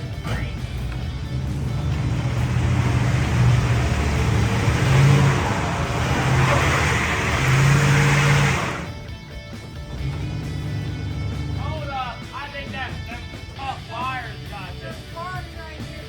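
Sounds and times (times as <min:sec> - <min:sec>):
vehicle engine under load: 0:00.0 - 0:12.0
rushing noise: 0:02.0 - 0:08.9.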